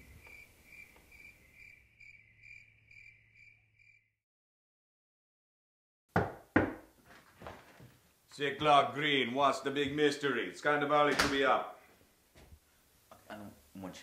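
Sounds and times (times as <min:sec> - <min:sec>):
cricket chirping: 0:00.0 - 0:04.2.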